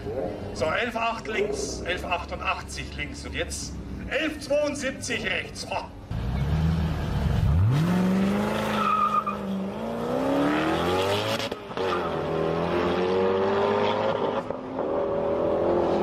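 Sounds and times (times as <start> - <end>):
car engine accelerating hard: 6.1 - 16.0.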